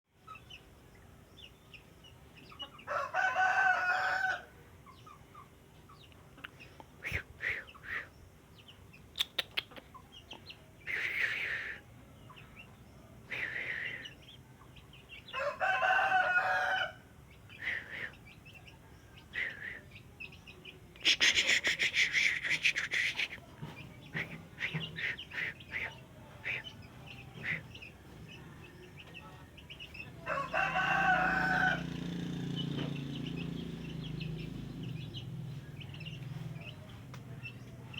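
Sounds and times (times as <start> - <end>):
rooster crowing: 2.9 - 4.6, 15.3 - 17.1, 30.2 - 32.7
bird chirps and calls: 4.8 - 15.4, 17.2 - 37.9.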